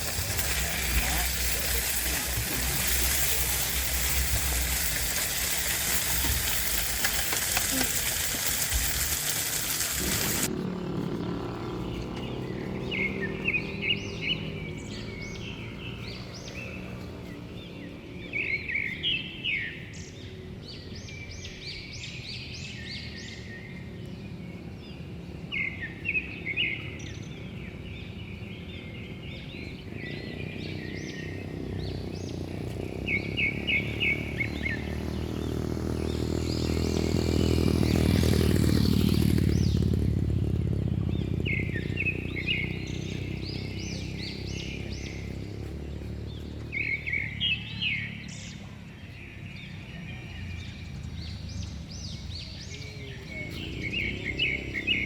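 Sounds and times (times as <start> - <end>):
food sizzling on a grill: 0.0 - 10.5
birds chirping: 0.0 - 55.0.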